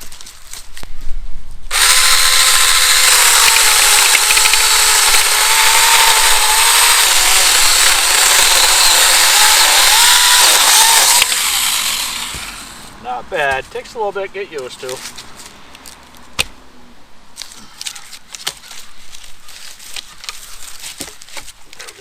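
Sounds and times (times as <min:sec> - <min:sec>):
mini chainsaw cutting log: 0:01.7 - 0:13.0.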